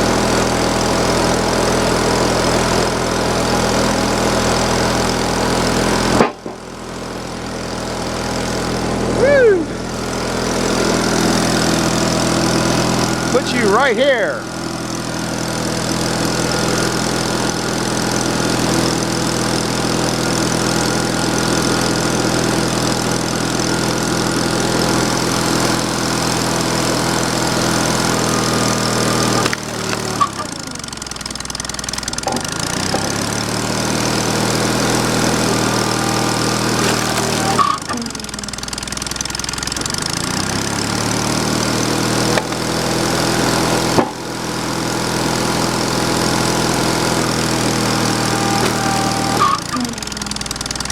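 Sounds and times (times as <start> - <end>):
sawmill engine running: 0.0 - 50.9.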